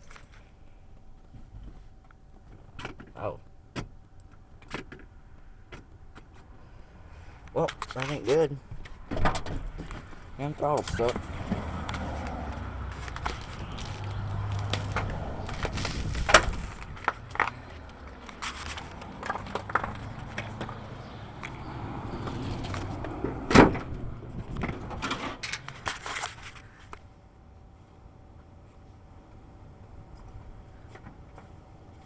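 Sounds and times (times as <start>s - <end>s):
low hum: 10.2s - 32.0s.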